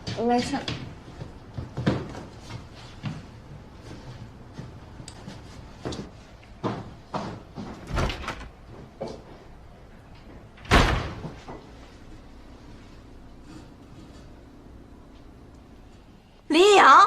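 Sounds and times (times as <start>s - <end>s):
door shut hard: 7.8s - 8.5s, 10.6s - 11.4s.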